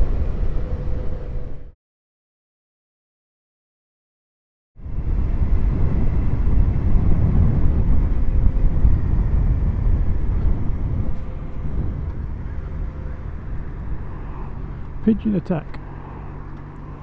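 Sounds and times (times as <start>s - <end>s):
wind rumble on microphone: 0.0s - 1.8s, 4.8s - 17.0s
motorcycle engine running: 4.8s - 17.0s.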